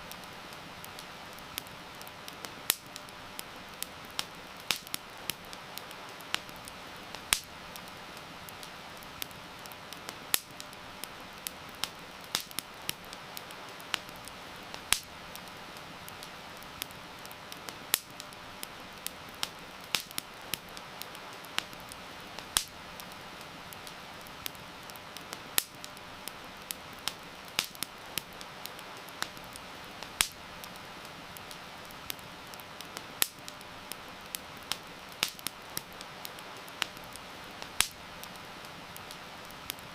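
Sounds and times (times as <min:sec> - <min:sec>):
campfire crackling: 0:00.0 - 0:39.9
heavy rain hiss: 0:00.0 - 0:39.9.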